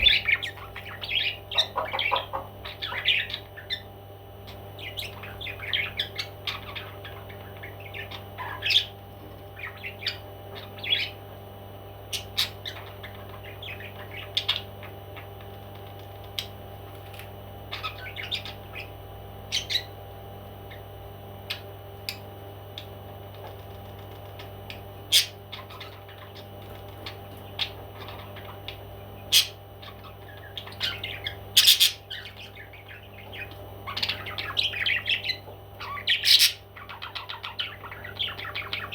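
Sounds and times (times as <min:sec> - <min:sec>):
parrots squawking and chirping: 0:00.0 - 0:03.9, 0:04.5 - 0:11.3, 0:12.1 - 0:15.4, 0:17.7 - 0:20.0, 0:24.2 - 0:38.9
steady low hum: 0:00.0 - 0:38.9.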